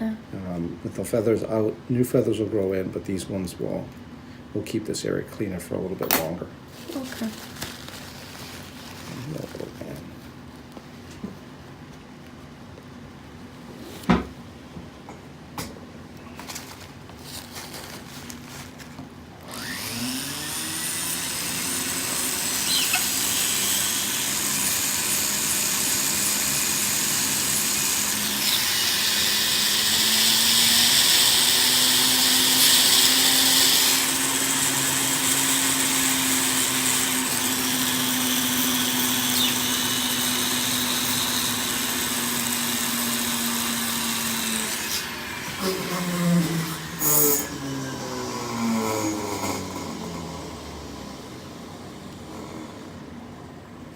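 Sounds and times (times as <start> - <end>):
harsh grinding on nails: 19.5 - 47.6
rotary grinding tool spinning: 19.5 - 50.5.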